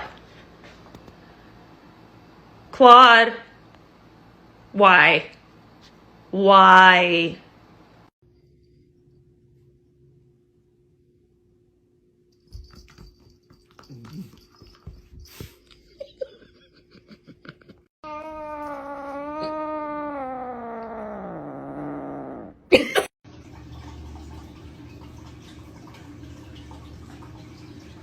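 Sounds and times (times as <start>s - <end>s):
cat yowling: 18.0s - 22.7s.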